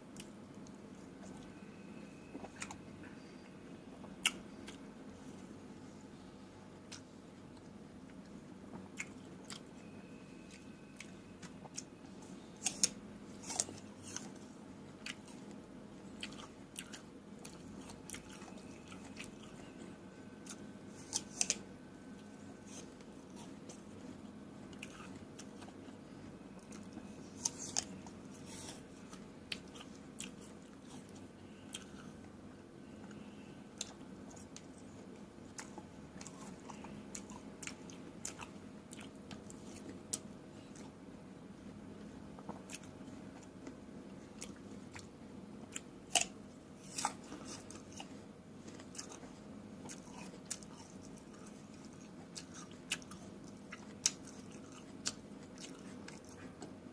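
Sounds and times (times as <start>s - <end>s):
wet chewing: 33.8s - 41.0s, 45.7s - 56.8s.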